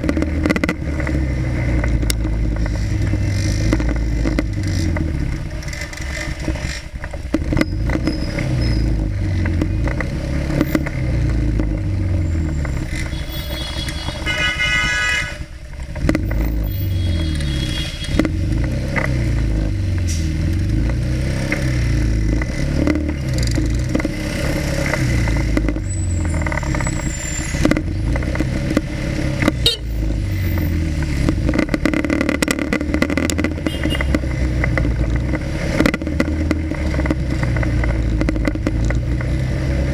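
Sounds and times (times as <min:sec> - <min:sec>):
motorcycle engine revving: 0:00.0 - 0:39.9
traffic: 0:00.0 - 0:39.9
brief high tone: 0:13.1 - 0:14.6.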